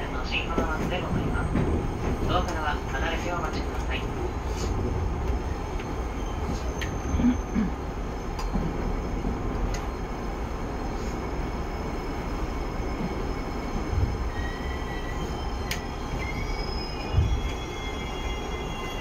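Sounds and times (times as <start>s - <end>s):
train running rumble: 0.0s - 19.0s
train brake squeal: 6.1s - 7.7s, 14.3s - 19.0s.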